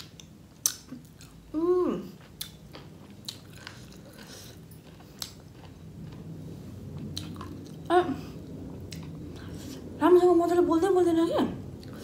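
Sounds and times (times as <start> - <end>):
wet chewing: 2.2 - 7.9.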